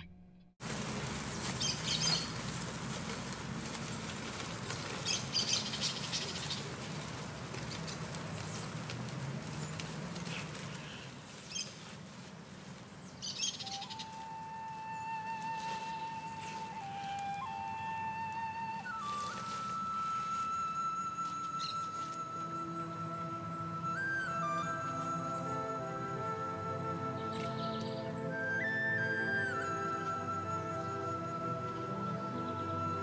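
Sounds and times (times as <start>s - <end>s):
birds chirping: 0.0s - 33.0s
held flute-like note: 13.4s - 33.0s.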